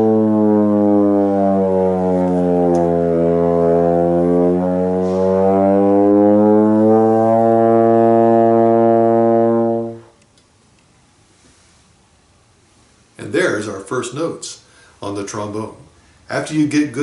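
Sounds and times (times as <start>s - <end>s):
trombone gliding note: 0.0s - 10.2s.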